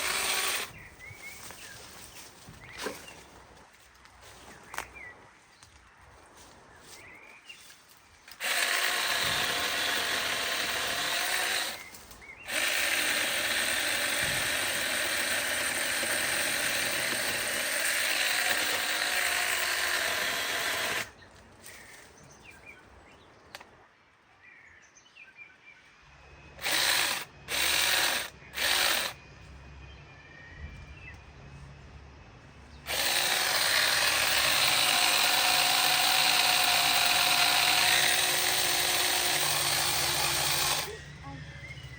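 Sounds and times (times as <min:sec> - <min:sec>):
chainsaw cutting: 0:00.0 - 0:00.8, 0:08.3 - 0:21.2, 0:26.6 - 0:29.2, 0:32.9 - 0:41.8
chainsaw throttle bursts: 0:00.0 - 0:00.8, 0:08.4 - 0:21.1, 0:26.6 - 0:29.2, 0:32.9 - 0:41.0.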